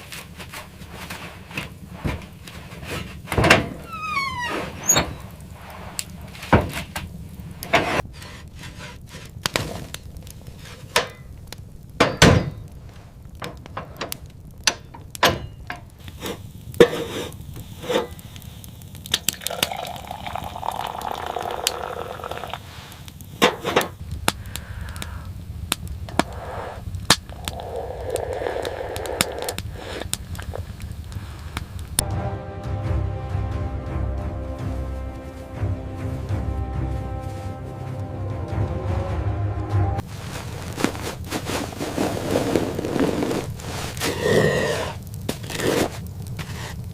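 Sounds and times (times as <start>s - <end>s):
rough noisy rumble: 0.0s - 18.8s, 22.5s - 46.8s
irregular knocks and thuds: 6.4s - 8.0s.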